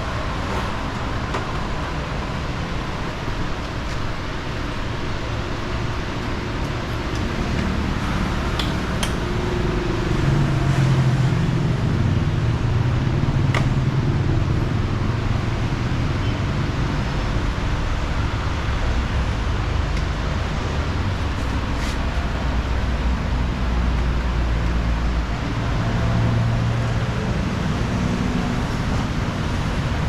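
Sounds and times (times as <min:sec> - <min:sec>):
road and wind noise: 0:00.0 - 0:30.0
motorcycle engine running: 0:05.3 - 0:12.3.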